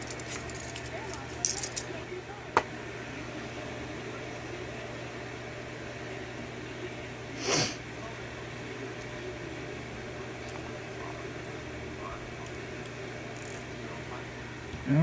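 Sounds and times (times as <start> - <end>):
low room hum: 0.0 - 15.0
breathy puff: 7.4 - 7.8.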